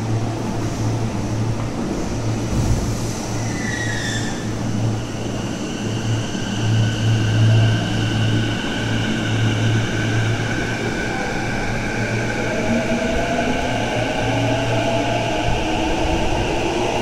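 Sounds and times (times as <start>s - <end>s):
train low hum: 0.0s - 17.0s.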